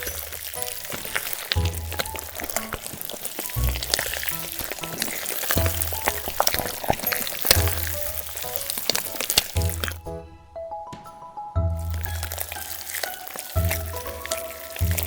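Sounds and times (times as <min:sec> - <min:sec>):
food sizzling in a pan: 0:00.0 - 0:10.0, 0:11.8 - 0:15.0
background music with bass line: 0:11.6 - 0:12.5.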